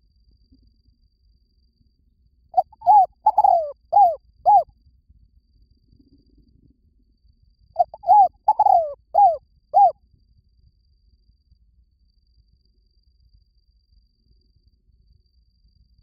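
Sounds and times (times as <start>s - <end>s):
dove cooing: 2.6s - 4.6s, 7.8s - 9.9s.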